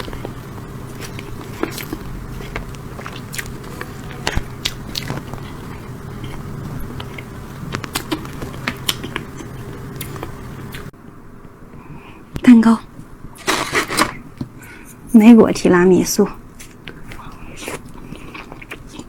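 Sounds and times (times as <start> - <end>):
mouth clicks and smacks chewing: 1.0 - 10.9, 16.8 - 19.0.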